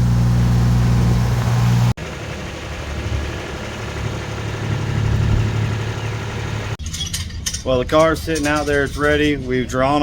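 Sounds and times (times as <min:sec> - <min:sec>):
vehicle engine humming: 0:00.0 - 0:07.0
rough engine rumble: 0:00.0 - 0:10.0.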